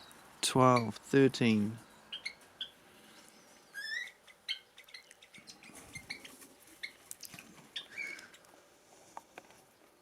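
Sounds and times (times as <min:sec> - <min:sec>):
small birds chirping: 0:00.0 - 0:08.6.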